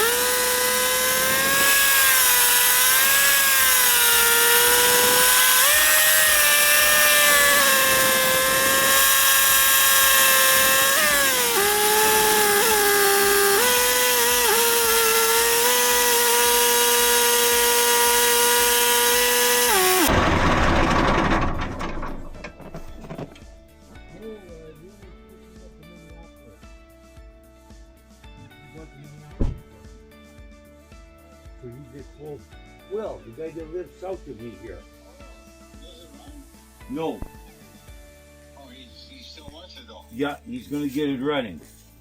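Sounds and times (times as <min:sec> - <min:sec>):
tractor drivetrain whine: 0:00.0 - 0:23.6.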